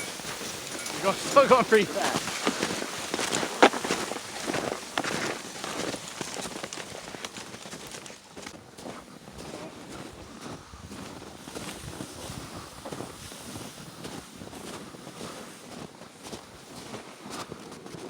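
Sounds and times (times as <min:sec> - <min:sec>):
footsteps crunching in snow: 0:00.0 - 0:10.2.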